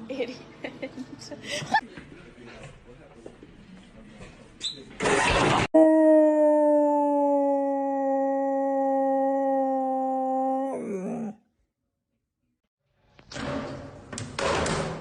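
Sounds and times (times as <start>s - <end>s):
dog howling: 5.8s - 11.4s.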